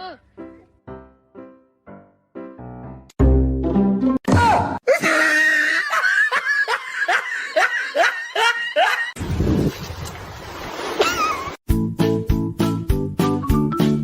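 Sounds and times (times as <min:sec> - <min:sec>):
person laughing: 0:04.9 - 0:09.2.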